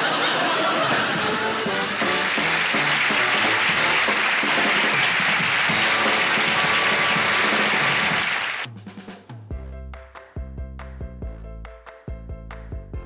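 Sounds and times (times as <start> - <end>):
studio audience applauding: 0.0 - 8.7
band music: 0.8 - 8.7.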